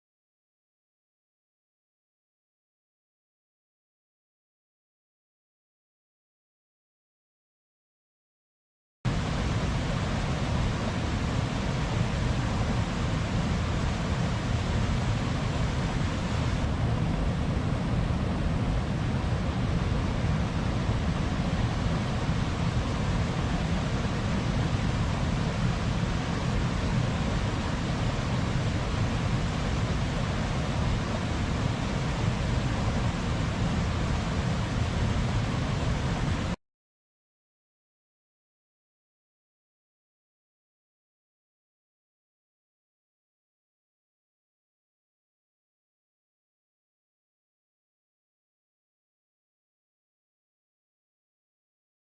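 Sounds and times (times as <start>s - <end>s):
steady low rushing noise: 9.1s - 36.6s.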